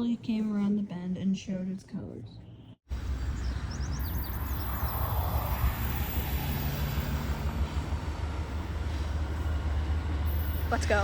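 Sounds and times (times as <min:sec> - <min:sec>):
diesel locomotive rumble: 0:02.9 - 0:11.0.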